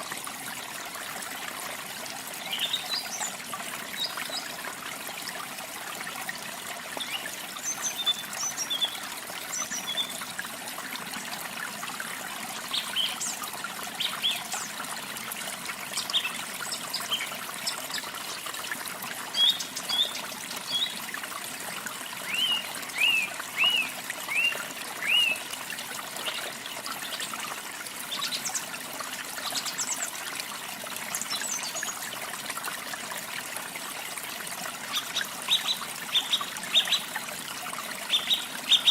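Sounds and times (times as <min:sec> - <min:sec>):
waterfall running water: 0:00.0 - 0:38.9
songbirds chirping: 0:22.2 - 0:25.4.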